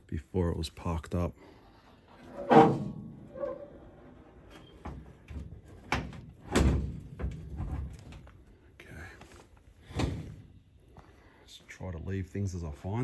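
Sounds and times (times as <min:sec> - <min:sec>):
knocks and thuds of object moved: 0:04.8 - 0:08.3, 0:09.8 - 0:10.5.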